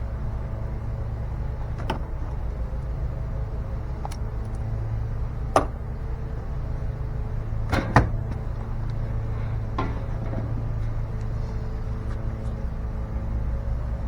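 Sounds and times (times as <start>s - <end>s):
sharp knocks: 5.5s - 5.8s.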